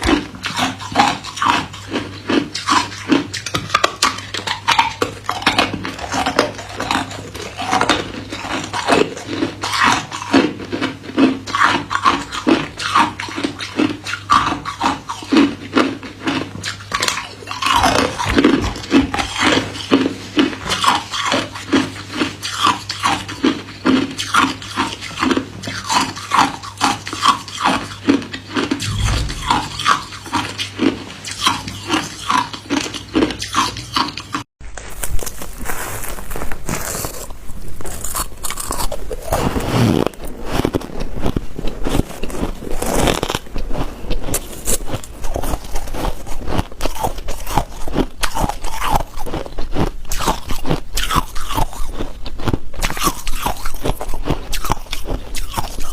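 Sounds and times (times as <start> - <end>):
ice cubes crunching in mouth: 33.0 - 55.9.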